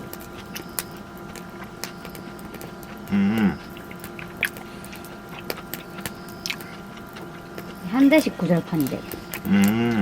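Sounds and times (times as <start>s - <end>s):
chewing: 0.0s - 10.0s
faint hum: 0.0s - 10.0s
person humming mm: 3.1s - 3.7s, 9.4s - 10.0s.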